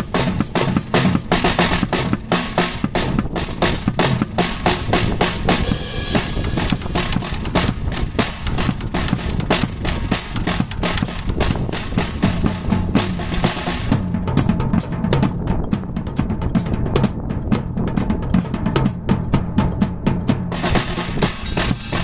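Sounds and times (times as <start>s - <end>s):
fast drum strokes: 0.0s - 22.0s
cymbals ringing: 4.4s - 11.0s.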